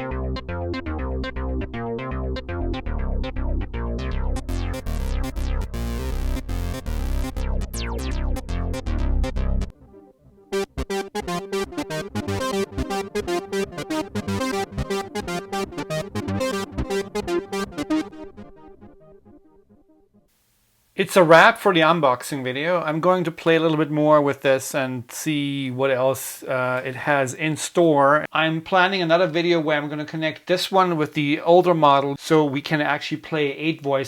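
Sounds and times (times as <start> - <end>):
deep synth bass line: 0.0 - 19.6
higher synthesizer note pattern: 0.0 - 19.8
synthesizer note run: 0.0 - 19.8.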